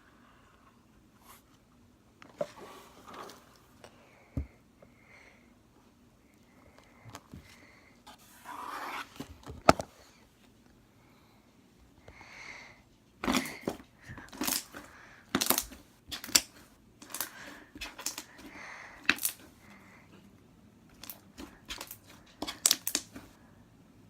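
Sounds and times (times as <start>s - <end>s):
slime squishing: 13.2s - 19.5s, 20.9s - 23.3s.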